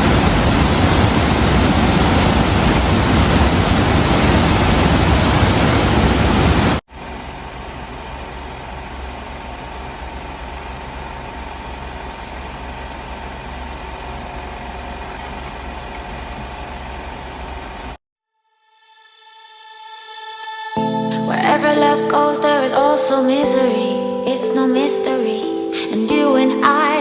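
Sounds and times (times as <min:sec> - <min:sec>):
faint hum: 0:00.0 - 0:18.0
loud steady hiss: 0:00.0 - 0:18.0.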